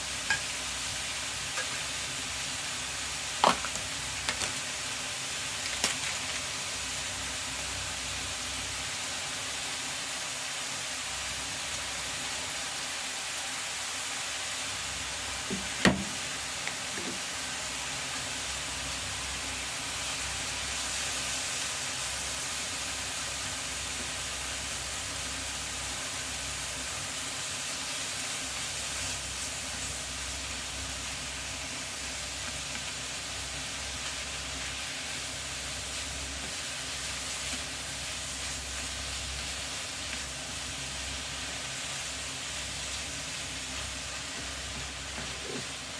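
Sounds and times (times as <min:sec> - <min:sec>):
mushrooms sizzling in a frying pan: 0:00.0 - 0:45.9.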